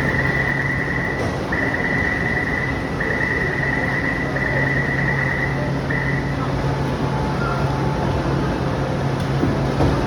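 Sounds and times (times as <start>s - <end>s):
door warning beeps: 0.0s - 6.4s
train low hum: 0.0s - 10.0s.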